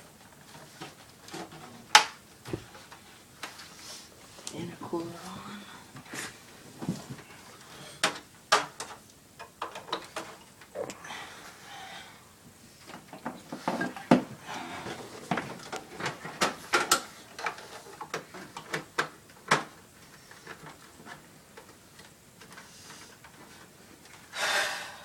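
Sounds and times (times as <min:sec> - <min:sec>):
plastic parts clicking and knocking: 0:08.0 - 0:10.5, 0:15.3 - 0:24.2.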